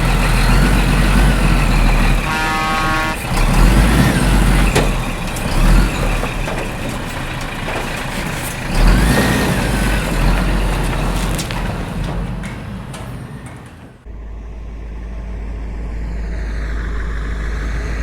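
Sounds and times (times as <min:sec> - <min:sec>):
heavy truck engine rumbling: 0:00.0 - 0:18.0
short knocks: 0:03.7 - 0:14.1.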